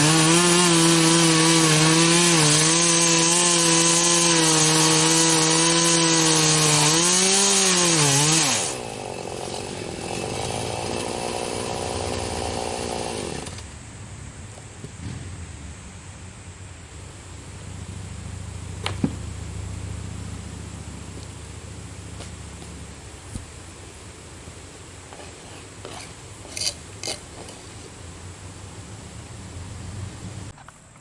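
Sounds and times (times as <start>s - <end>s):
chainsaw cutting and idling: 0.0s - 13.7s, 25.1s - 27.7s.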